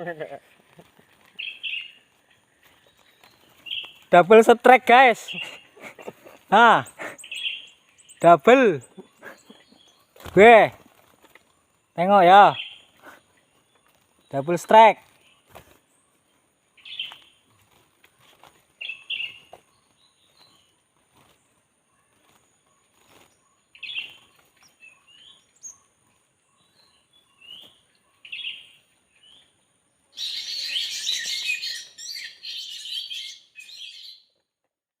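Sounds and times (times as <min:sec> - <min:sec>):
small birds chirping: 0:00.0 - 0:34.5
harsh bird chattering: 0:05.2 - 0:07.8, 0:08.7 - 0:10.0.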